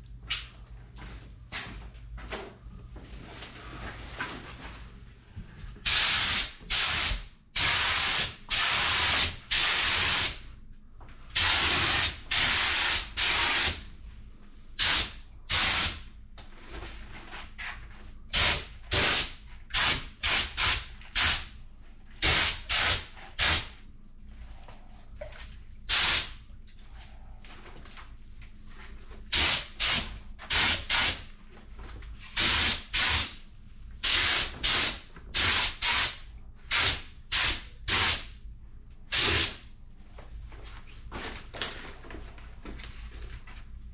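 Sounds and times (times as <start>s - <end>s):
paint sprayer hissing: 5.8s - 10.4s, 11.4s - 13.8s, 14.8s - 16.0s, 18.3s - 21.5s, 22.2s - 23.7s, 25.9s - 26.4s, 29.3s - 31.2s, 32.4s - 33.4s, 34.0s - 38.3s, 39.1s - 39.6s.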